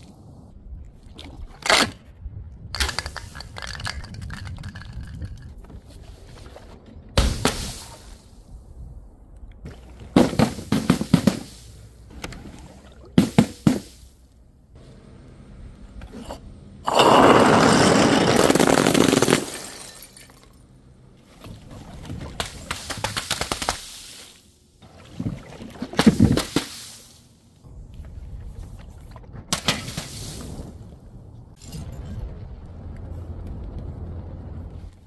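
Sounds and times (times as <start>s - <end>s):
glass bottles smashing: 16.9s - 20.6s
glass shards clattering: 19.1s - 20.6s.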